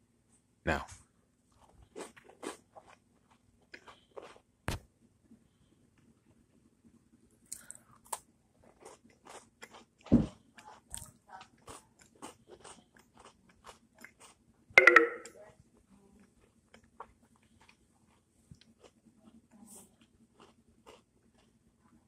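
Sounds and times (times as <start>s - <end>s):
cookie crunching: 7.5s - 14.5s, 16.2s - 22.0s.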